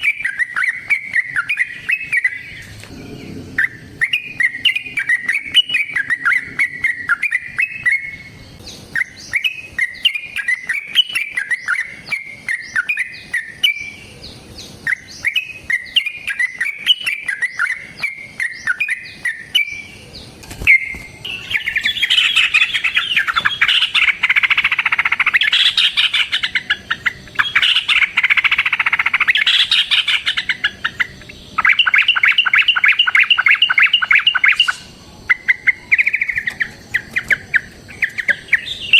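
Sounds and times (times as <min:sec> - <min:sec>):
bird bubbly chirping phrases: 0:00.0 - 0:08.0, 0:21.3 - 0:38.9
rapid trilling bird chatter: 0:00.0 - 0:38.9.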